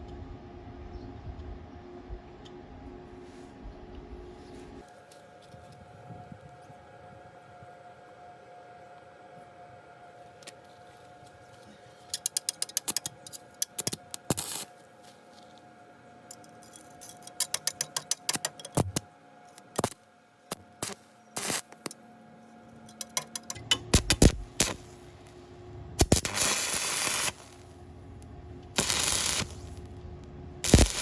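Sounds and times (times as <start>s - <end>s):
faint steady hum: 0.0s - 31.0s
sharp metallic clicks: 22.9s - 24.8s.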